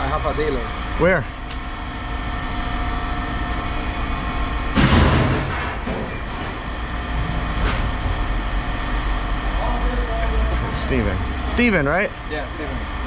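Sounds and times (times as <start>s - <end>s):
loud crash: 4.8s - 5.8s.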